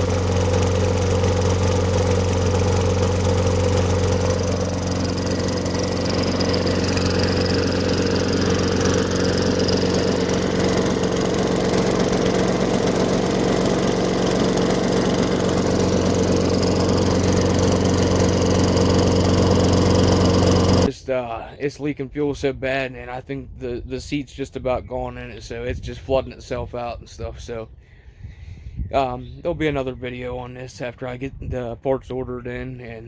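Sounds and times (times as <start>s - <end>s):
lawn mower engine running: 0.0s - 20.9s.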